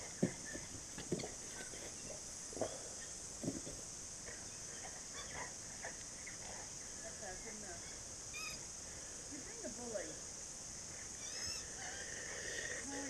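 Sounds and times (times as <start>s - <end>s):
faint bird chirps: 4.3s - 8.7s, 11.0s - 12.9s
high-pitched insect drone: 4.3s - 13.0s.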